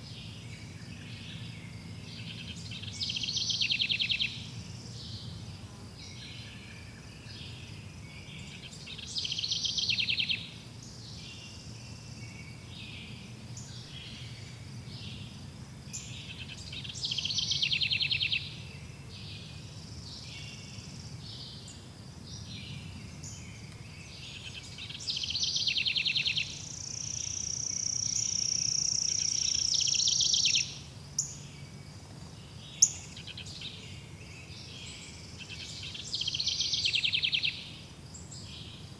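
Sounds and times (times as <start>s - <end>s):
bird trilled song: 23.1s - 31.6s, 32.5s - 37.6s.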